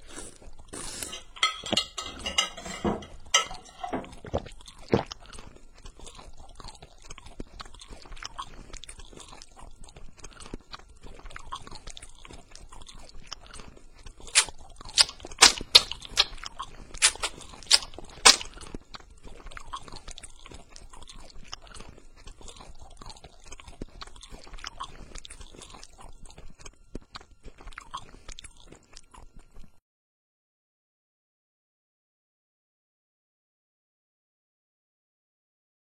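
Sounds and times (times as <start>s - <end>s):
crunching and chewing: 0.0s - 29.8s
loud sharp cracks: 14.4s - 16.4s, 17.0s - 18.5s.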